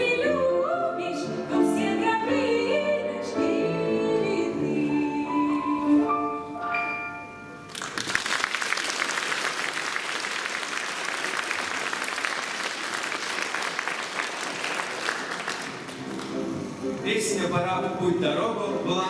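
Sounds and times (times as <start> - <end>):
audience applause: 7.7 - 16.7.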